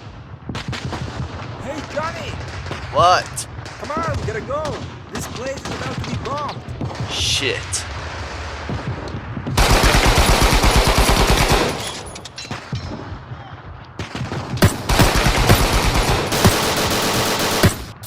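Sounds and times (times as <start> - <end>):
automatic machine-gun fire: 0.6 - 12.8, 14.0 - 18.0.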